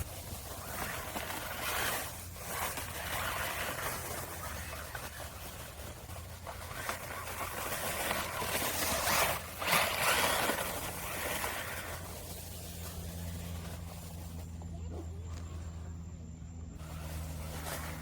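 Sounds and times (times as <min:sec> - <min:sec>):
rc car motor and tyres rushing: 0:00.0 - 0:15.7, 0:16.6 - 0:18.0.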